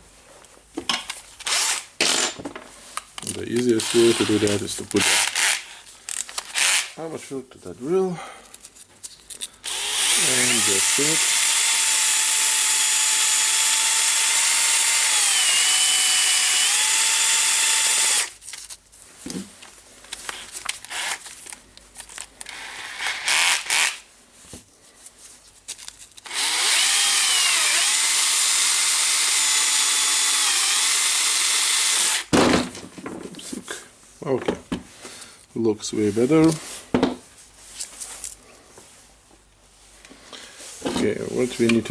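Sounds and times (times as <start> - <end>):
power drill whining: 1.4 - 2.4, 9.6 - 18.3, 20.9 - 21.2, 22.4 - 24.0, 26.2 - 32.3.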